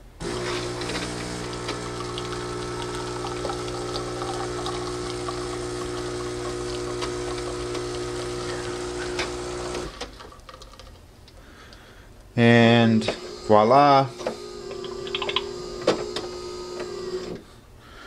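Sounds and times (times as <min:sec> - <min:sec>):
espresso machine pump humming: 0:00.2 - 0:10.2, 0:14.3 - 0:17.4
espresso running into cup: 0:00.2 - 0:10.2, 0:14.7 - 0:17.3.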